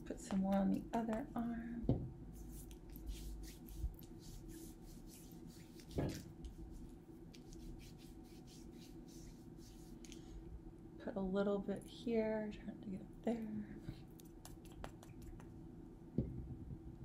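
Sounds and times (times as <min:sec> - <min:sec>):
soft knock: 0:01.9 - 0:02.1
hands rubbing liquid on skin: 0:02.3 - 0:10.2, 0:14.1 - 0:15.6.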